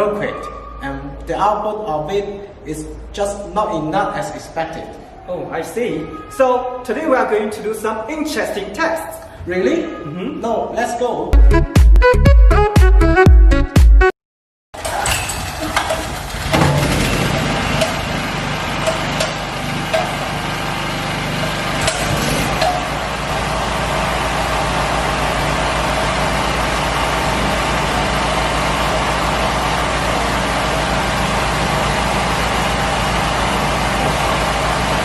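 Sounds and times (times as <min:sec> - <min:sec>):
generator engine running: 0:14.8 - 0:35.0.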